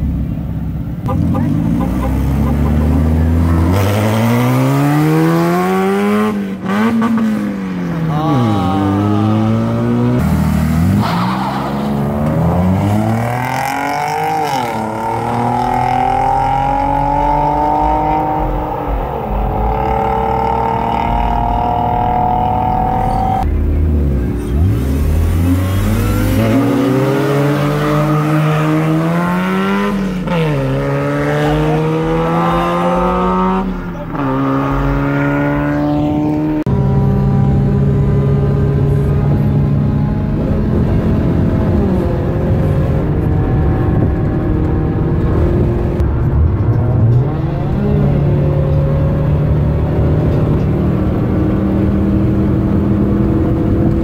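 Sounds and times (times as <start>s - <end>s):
car engines revving: 0.0s - 54.0s
tyre squeal: 21.3s - 23.4s.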